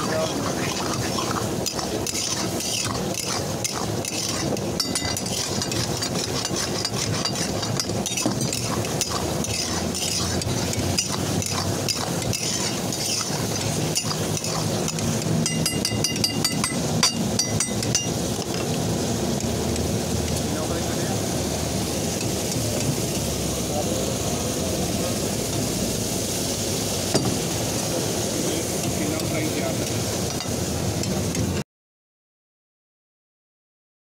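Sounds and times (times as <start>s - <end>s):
metal spatula scraping and clinking: 0.0s - 18.2s
meat sizzling in a wok: 0.0s - 31.6s.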